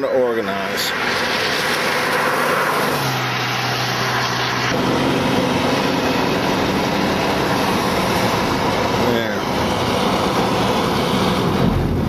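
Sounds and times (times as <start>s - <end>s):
car engine: 0.0s - 12.0s
road noise inside car: 0.0s - 12.0s.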